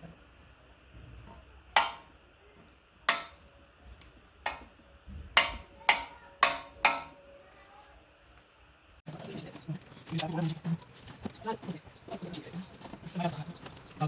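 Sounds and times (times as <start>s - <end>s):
sharp metallic clicks with ring: 1.8s - 2.1s, 3.1s - 3.4s, 4.5s - 4.7s, 5.4s - 7.2s.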